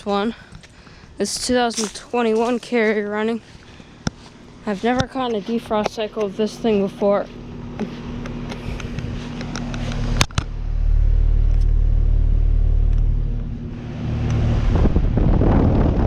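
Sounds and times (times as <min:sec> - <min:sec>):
heat pump humming: 0:00.0 - 0:16.0
heavy low rumble: 0:00.0 - 0:16.0.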